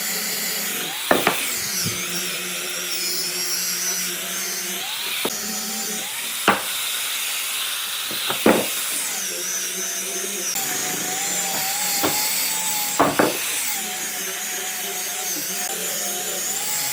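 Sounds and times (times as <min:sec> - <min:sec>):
power tool whining on wood: 0:00.0 - 0:16.9
sharp knocks: 0:01.1 - 0:01.5, 0:06.5 - 0:06.8, 0:08.1 - 0:08.8, 0:11.5 - 0:12.3, 0:13.0 - 0:13.4.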